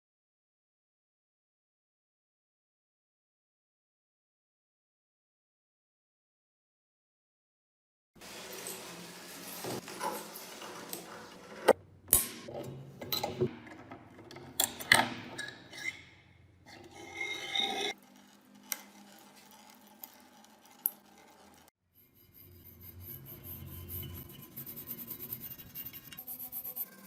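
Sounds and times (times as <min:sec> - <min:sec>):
rubbing and rasping on metal: 0:15.3 - 0:27.0.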